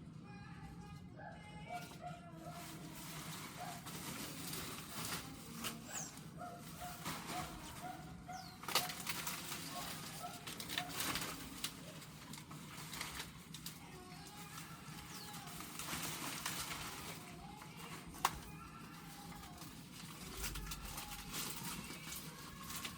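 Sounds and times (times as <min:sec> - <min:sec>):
rustles: 0:01.7 - 0:22.9
birds chirping: 0:03.3 - 0:11.2, 0:13.6 - 0:17.3.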